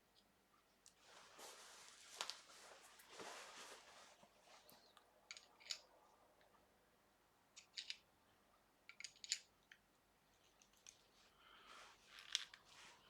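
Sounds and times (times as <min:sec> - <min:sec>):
small plastic parts clicking: 0:08.9 - 0:09.8.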